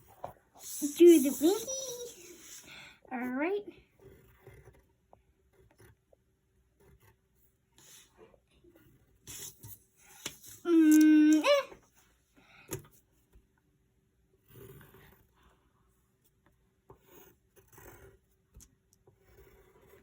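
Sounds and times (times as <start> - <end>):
pencil scratching on paper: 0.0 - 11.4, 14.4 - 20.0
person humming: 10.7 - 11.7.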